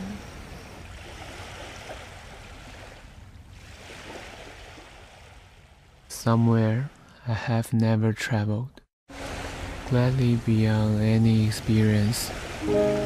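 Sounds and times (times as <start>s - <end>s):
waves washing onto beach: 0.0s - 5.8s, 9.1s - 13.0s.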